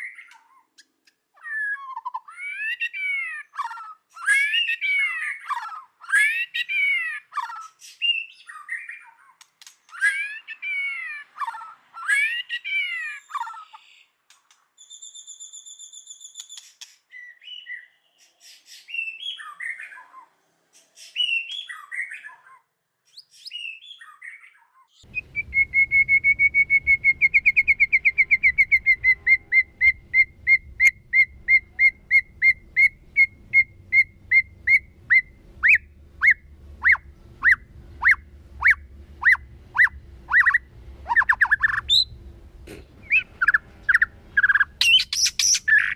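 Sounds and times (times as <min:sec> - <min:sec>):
bird singing whistled phrases: 0:14.8 - 0:18.1, 0:18.7 - 0:20.1, 0:21.0 - 0:22.4, 0:23.2 - 0:42.1, 0:43.0 - 0:45.9
faint low hum: 0:25.0 - 0:45.9.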